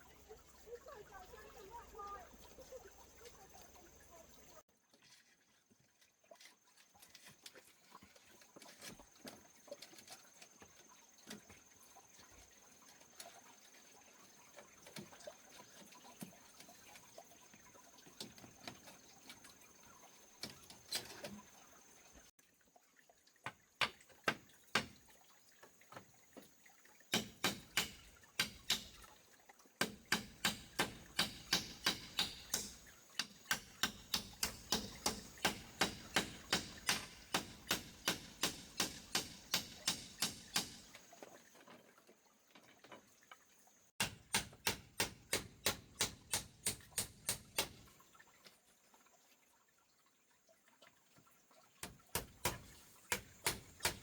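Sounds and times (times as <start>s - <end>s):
rapid sharp knocks: 29.8s - 40.8s.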